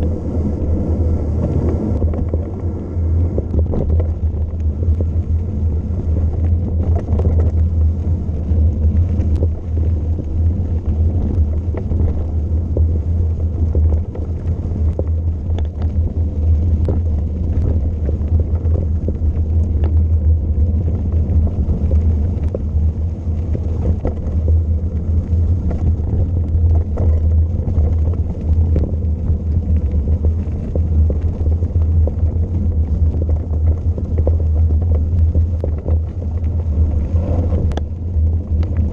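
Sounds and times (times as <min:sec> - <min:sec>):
wind buffeting microphone: 0:00.0 - 0:38.9
light ticks: 0:13.7 - 0:20.1, 0:25.2 - 0:38.0.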